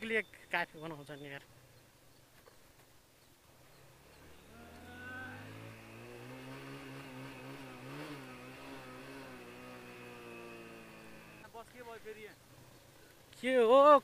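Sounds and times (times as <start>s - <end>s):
motorcycle engine under throttle: 3.8s - 11.5s.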